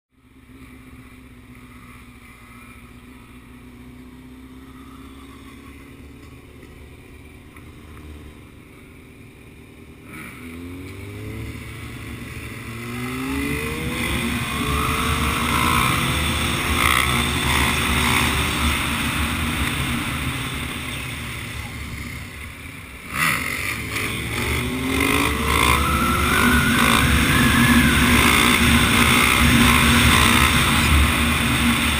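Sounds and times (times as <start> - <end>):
dirt bike engine revving: 9.9 - 31.9.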